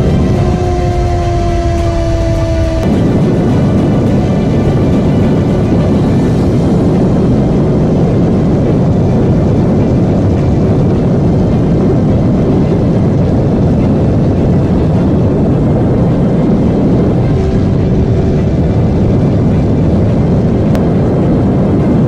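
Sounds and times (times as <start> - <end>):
rushing noise: 0.0 - 22.0
motorcycle engine rumble: 8.6 - 21.2.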